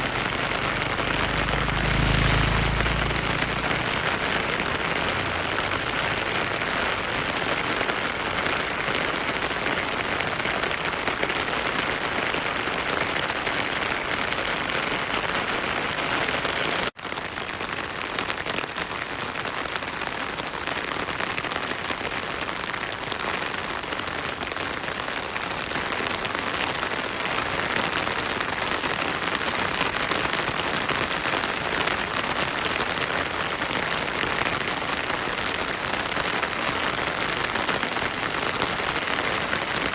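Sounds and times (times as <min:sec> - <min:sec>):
heavy rain hissing: 0:00.0 - 0:16.9.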